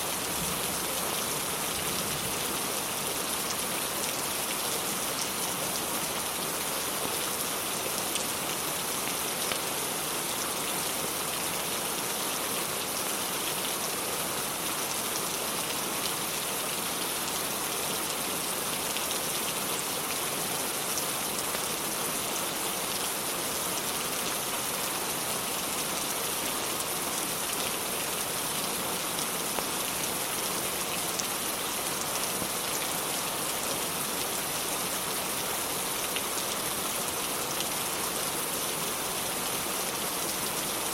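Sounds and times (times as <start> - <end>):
rain pattering on surfaces: 0.1 - 7.0, 22.4 - 40.9.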